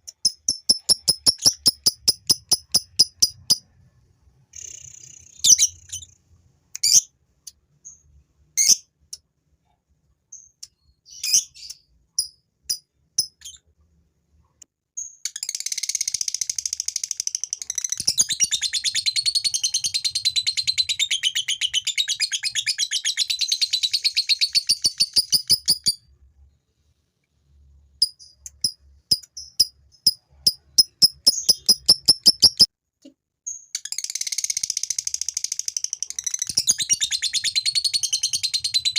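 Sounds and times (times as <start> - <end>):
sharp bird chirps: 0.0 - 3.7, 4.5 - 6.2, 15.0 - 26.1, 28.0 - 32.7, 33.5 - 38.9
lovebird chattering trill: 0.1 - 3.6, 28.0 - 32.7.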